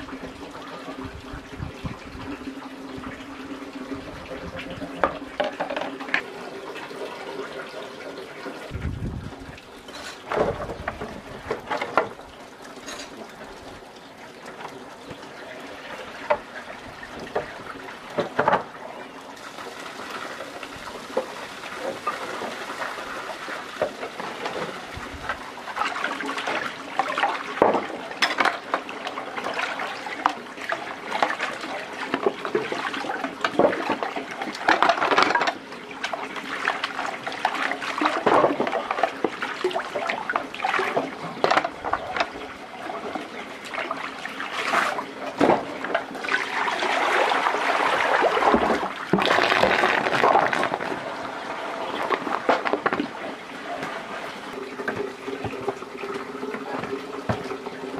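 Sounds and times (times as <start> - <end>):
water splashing and pouring: 0.0 - 57.9
knocks and clatter: 5.0 - 6.2.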